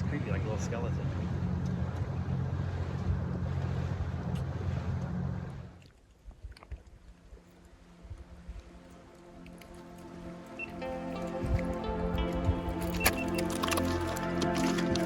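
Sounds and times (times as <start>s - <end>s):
boat motor running: 0.0s - 5.8s, 9.2s - 15.0s
wind noise on microphone: 11.2s - 13.8s.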